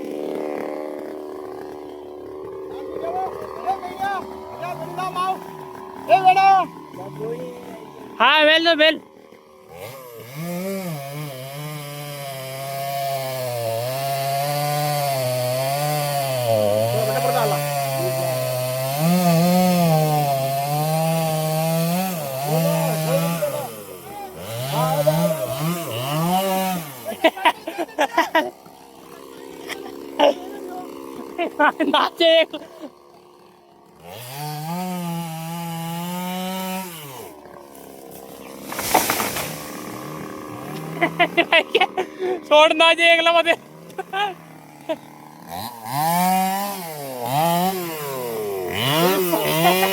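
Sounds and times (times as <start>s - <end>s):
chainsaw cutting wood: 0.0s - 49.9s
rough crackling burst: 38.2s - 41.1s.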